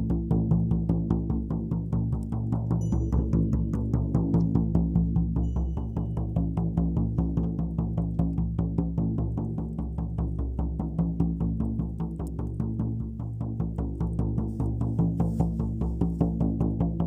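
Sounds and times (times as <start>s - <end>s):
low ringing hum: 2.7s - 4.3s, 5.2s - 7.1s
deep frame drum beating: 6.3s - 17.0s.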